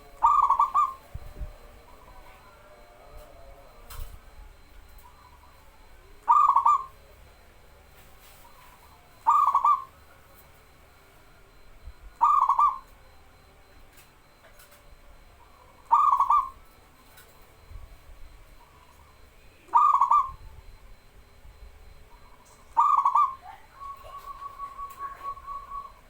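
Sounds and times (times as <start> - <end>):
dove cooing: 0.0 - 26.0
thin whistle-like tone: 18.7 - 26.0.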